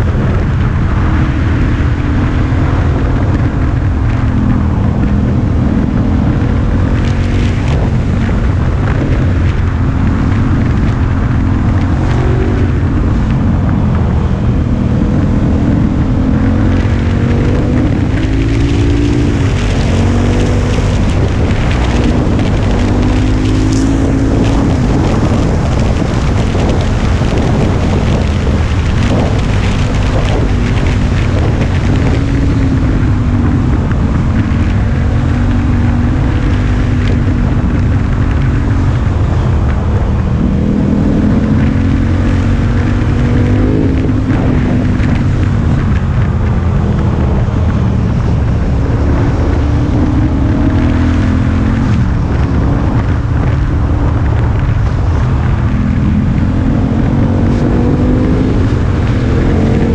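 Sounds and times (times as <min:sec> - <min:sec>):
motorcycle engine revving: 0:00.0 - 0:59.9
wind noise on microphone: 0:00.0 - 0:59.9.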